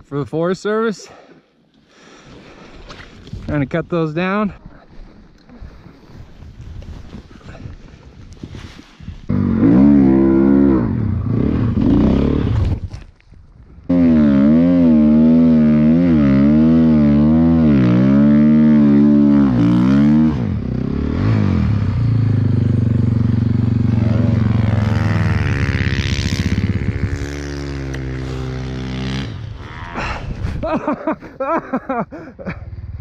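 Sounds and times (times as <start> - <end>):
motorbike engine revving: 9.3 - 12.8, 13.9 - 30.2.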